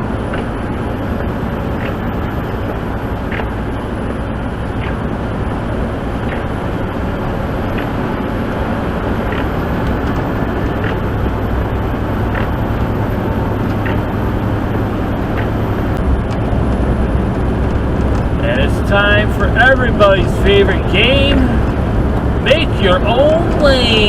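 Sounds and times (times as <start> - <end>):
road noise: 0.0 - 24.0
truck engine drone: 0.0 - 24.0.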